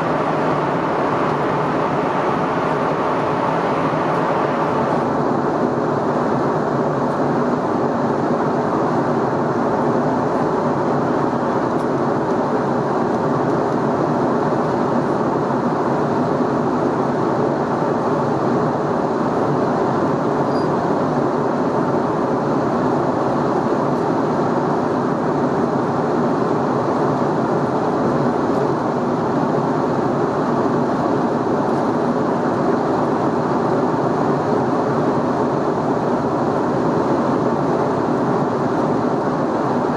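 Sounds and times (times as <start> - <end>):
airflow rush over fuselage: 0.0 - 6.8
jet engine hum: 0.0 - 39.9.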